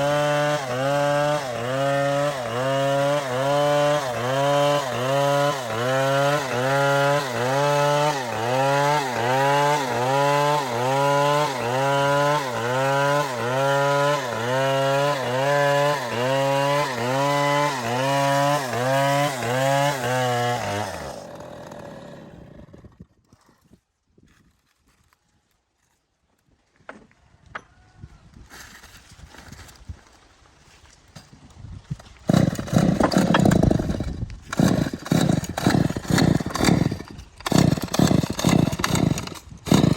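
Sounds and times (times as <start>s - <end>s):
chainsaw cutting wood: 0.0s - 23.8s, 32.0s - 39.9s.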